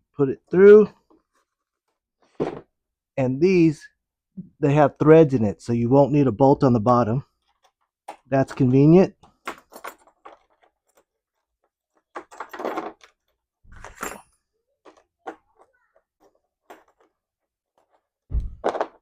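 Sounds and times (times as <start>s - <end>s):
metal hardware clicking and knocking: 7.4s - 11.2s, 11.9s - 17.2s.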